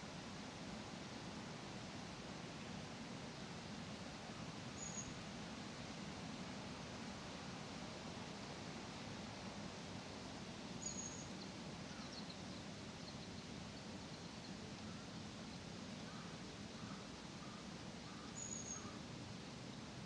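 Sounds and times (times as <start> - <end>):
outdoor background noise: 0.0 - 20.0
birds calling faintly: 10.8 - 19.9.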